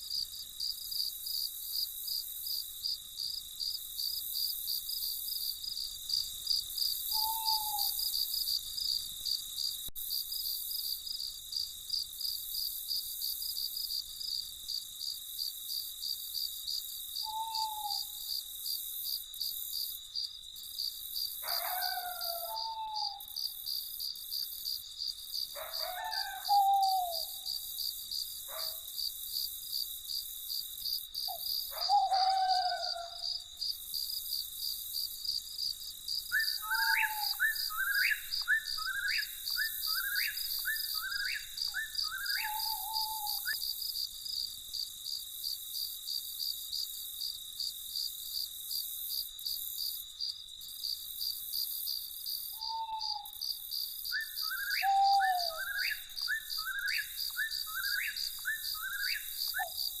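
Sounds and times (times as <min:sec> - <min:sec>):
crickets trilling: 0:00.0 - 1:00.0
night bird calling: 0:06.9 - 0:08.6, 0:17.2 - 0:18.3, 0:21.4 - 0:23.6, 0:25.6 - 0:27.8, 0:28.5 - 0:28.9, 0:31.2 - 0:33.5, 0:36.2 - 0:43.8, 0:52.5 - 1:00.0.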